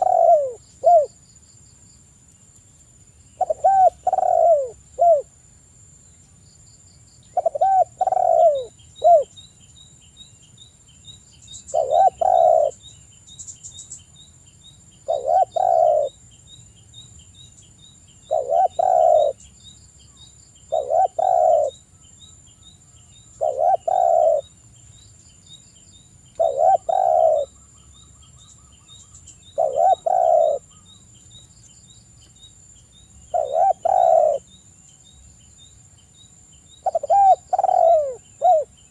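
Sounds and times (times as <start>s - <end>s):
dove cooing: 0.0s - 1.2s, 3.4s - 5.3s, 7.3s - 9.3s, 11.7s - 12.8s, 15.0s - 16.2s, 18.3s - 19.4s, 20.7s - 21.8s, 23.4s - 24.5s, 26.4s - 27.6s, 29.5s - 30.8s, 33.3s - 34.5s, 36.8s - 38.8s.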